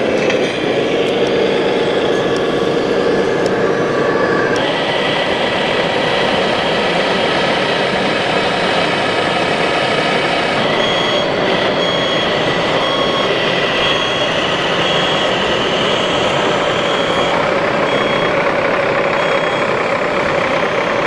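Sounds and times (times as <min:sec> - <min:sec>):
reversing beeps: 0:00.0 - 0:04.6, 0:10.6 - 0:21.0
model truck motor whine: 0:00.0 - 0:21.0.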